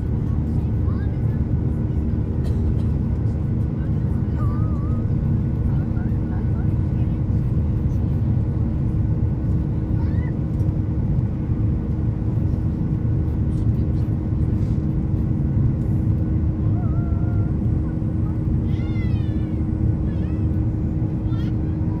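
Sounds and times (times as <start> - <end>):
airliner cabin rumble: 0.0 - 22.0
faint high-pitched voice: 16.7 - 20.6, 21.2 - 22.0.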